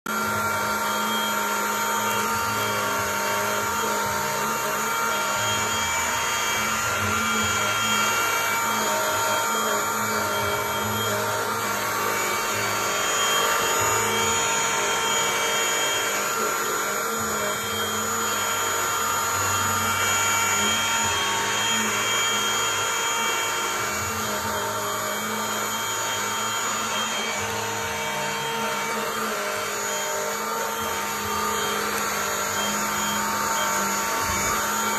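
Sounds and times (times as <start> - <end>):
stick vacuum cleaner running: 0.1 - 34.9.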